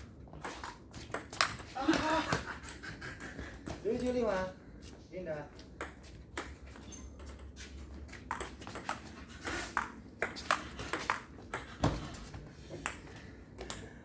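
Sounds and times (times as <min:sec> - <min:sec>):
table tennis ball hits: 0:08.3 - 0:13.1.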